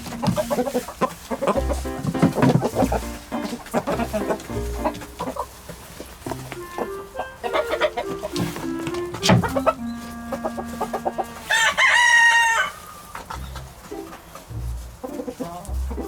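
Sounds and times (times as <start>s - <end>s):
soft background music: 0.0s - 5.4s, 6.3s - 12.7s, 13.3s - 16.0s
chickens clucking: 0.0s - 16.0s
rooster crowing: 9.5s - 13.2s.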